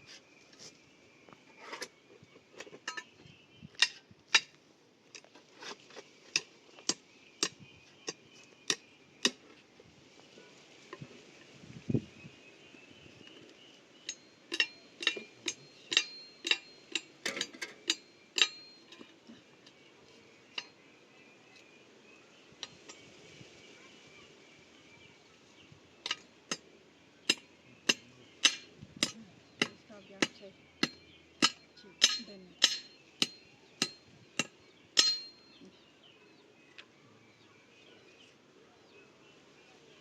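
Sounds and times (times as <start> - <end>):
tool tapping on metal: 6.3 - 9.4, 14.0 - 19.8, 26.0 - 35.7.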